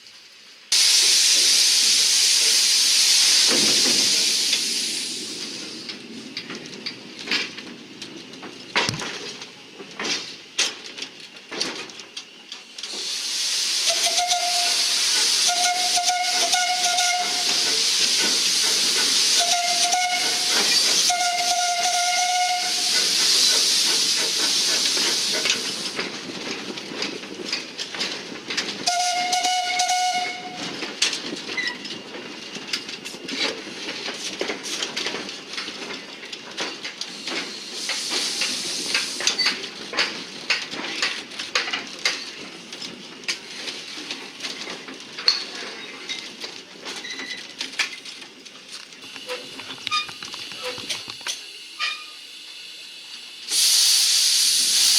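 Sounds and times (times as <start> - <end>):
loud hiss: 0.7 - 6.1, 12.8 - 26.0, 37.1 - 39.6, 49.1 - 54.9
locomotive whistle blasts: 13.8 - 17.6, 19.3 - 23.0, 28.9 - 30.6, 51.8 - 52.3.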